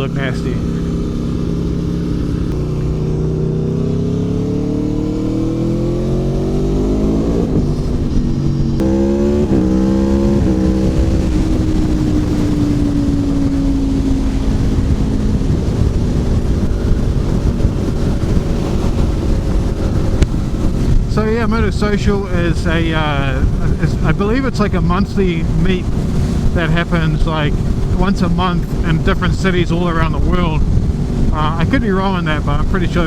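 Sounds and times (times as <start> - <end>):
motorcycle engine revving: 0.0 - 24.1, 25.4 - 29.2
even rushing noise: 0.0 - 33.0.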